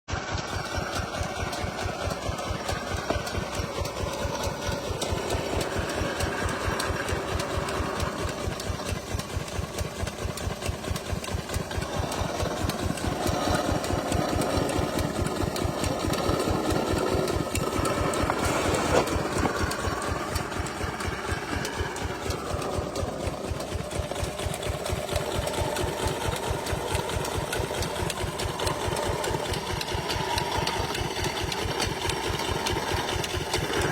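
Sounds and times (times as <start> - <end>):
single-cylinder diesel engine running: 0.0 - 33.9.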